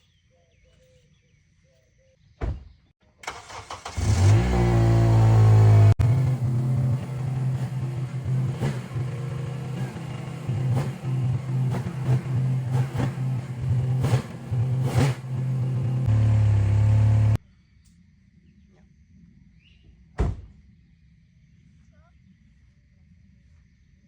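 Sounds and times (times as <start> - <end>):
thump: 2.4 - 2.8, 20.2 - 20.6
vehicle engine starting and revving: 3.2 - 17.4.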